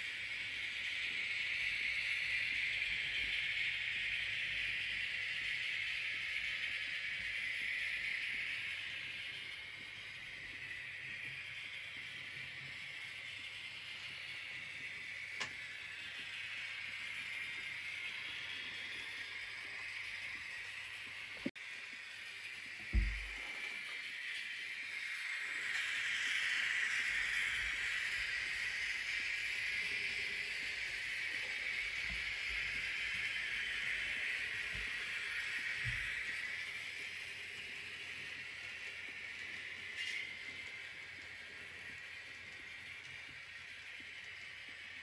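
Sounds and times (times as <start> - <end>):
train rolling hiss: 0.0 - 45.0
short low thump: 22.9 - 23.3.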